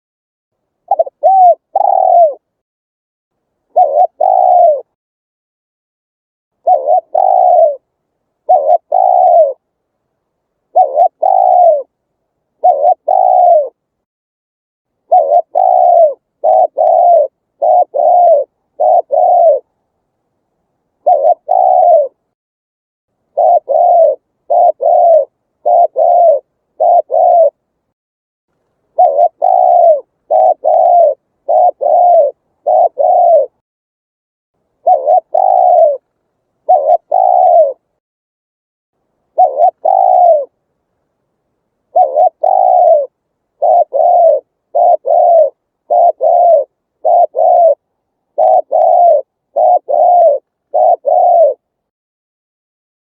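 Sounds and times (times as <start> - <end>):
dove cooing: 0.9 - 2.5, 3.7 - 5.0, 6.6 - 9.7, 10.7 - 12.0, 12.6 - 13.8, 15.0 - 19.8, 21.0 - 22.3, 23.3 - 27.6, 28.9 - 33.6, 34.8 - 38.0, 39.3 - 40.6, 41.9 - 51.7.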